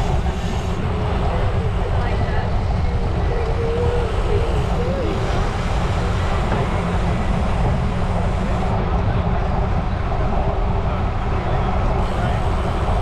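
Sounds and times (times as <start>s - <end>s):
tyre and road noise: 0.0s - 9.8s.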